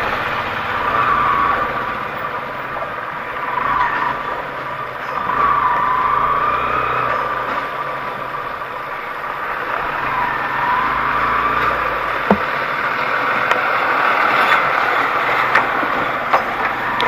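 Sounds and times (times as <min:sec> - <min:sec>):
vehicle engine running: 0:00.0 - 0:17.0
sharp knocks: 0:12.2 - 0:12.6.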